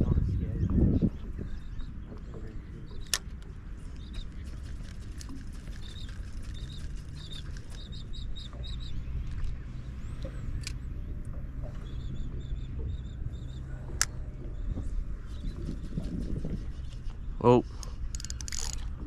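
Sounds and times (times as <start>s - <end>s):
low steady hum: 0.0s - 19.0s
sharp clicks: 3.0s - 7.9s
bird chirping: 3.8s - 17.5s.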